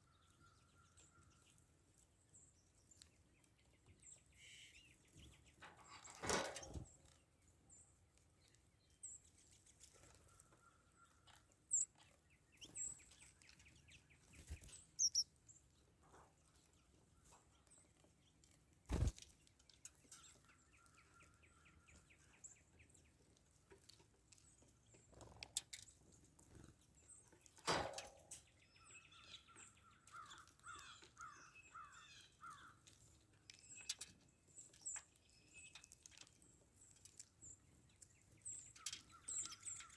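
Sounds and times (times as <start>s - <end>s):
faint outdoor background: 0.0s - 39.9s
songbirds chirping: 0.0s - 39.9s.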